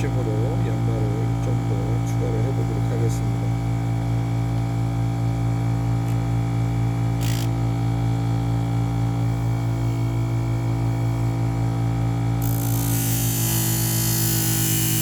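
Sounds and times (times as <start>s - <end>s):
grinder motor hum: 0.0s - 15.0s
knife grinding hiss: 12.4s - 15.0s.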